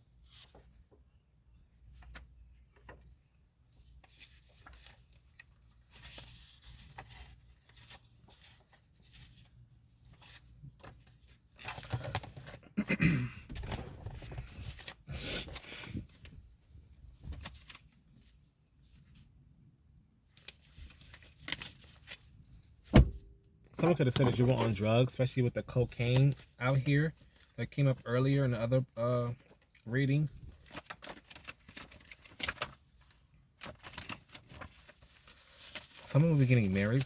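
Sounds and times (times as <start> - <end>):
cards rustling: 23.8 - 25.2, 25.8 - 29.9, 30.5 - 37.0.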